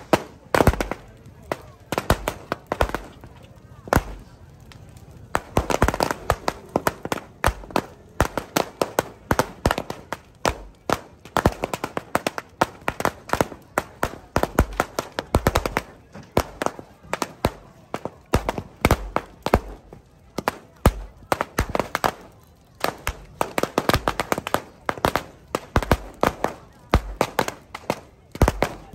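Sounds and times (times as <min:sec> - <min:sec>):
firecrackers banging: 0:00.0 - 0:28.9.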